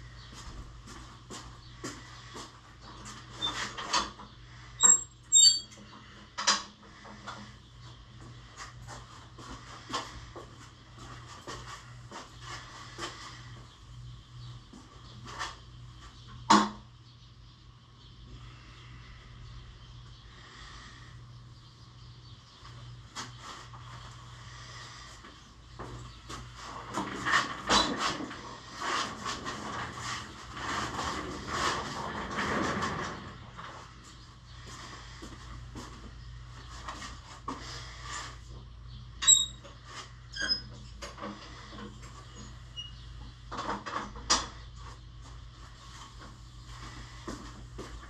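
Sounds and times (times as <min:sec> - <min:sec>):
sharp ringing clink: 0:04.8 - 0:05.7.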